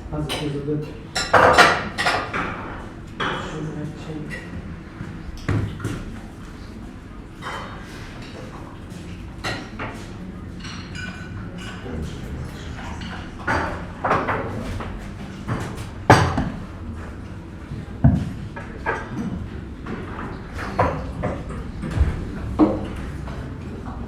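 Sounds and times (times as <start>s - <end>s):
crockery and cutlery clinking: 7.4s - 16.5s.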